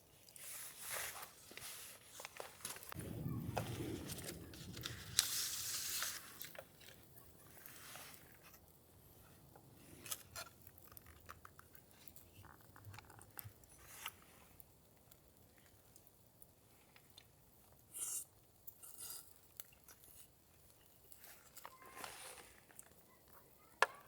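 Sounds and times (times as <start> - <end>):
rustling tearing hiss: 0.4 - 6.9.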